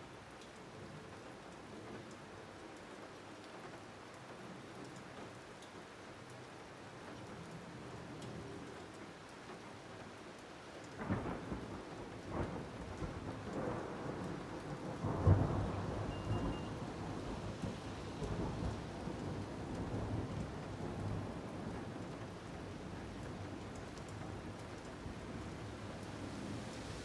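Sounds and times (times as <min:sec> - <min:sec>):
steady rain: 0:00.0 - 0:27.0
thunder rumbling: 0:12.3 - 0:27.0.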